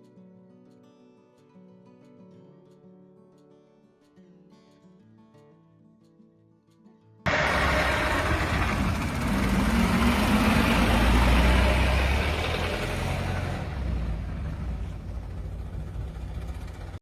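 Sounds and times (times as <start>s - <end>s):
car engine running: 7.3s - 17.0s.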